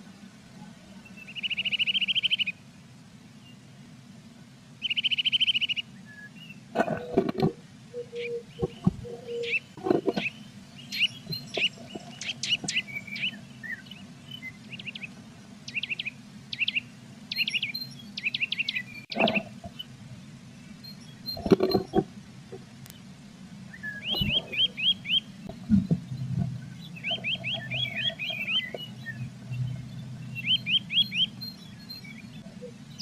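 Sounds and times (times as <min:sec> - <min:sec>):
buzzy bird trill: 0:07.9 - 0:19.9, 0:23.7 - 0:33.0.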